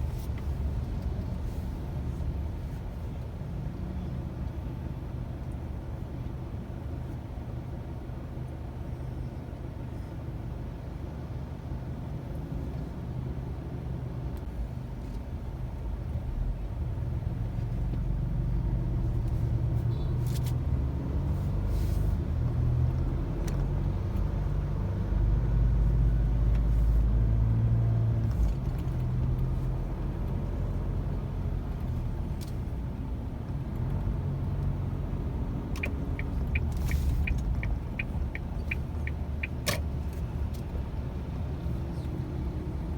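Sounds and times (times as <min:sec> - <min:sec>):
car road and engine rumble: 0:00.0 - 0:42.9
quick regular ticking: 0:35.8 - 0:40.0.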